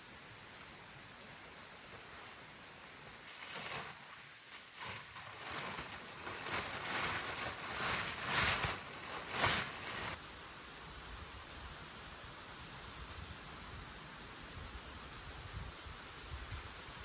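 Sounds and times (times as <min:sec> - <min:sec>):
footsteps crunching through leaves: 0:00.0 - 0:10.2.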